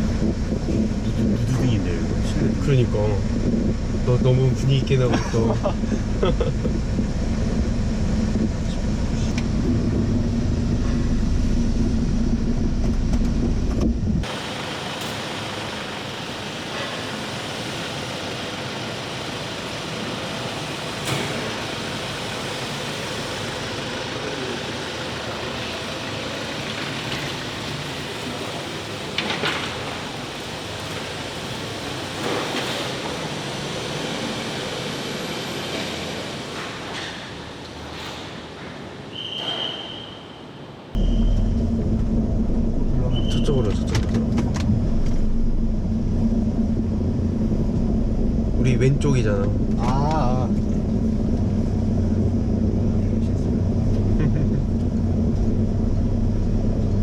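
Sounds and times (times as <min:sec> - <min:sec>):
engine and road rumble: 0:00.0 - 0:39.1, 0:40.8 - 0:57.0.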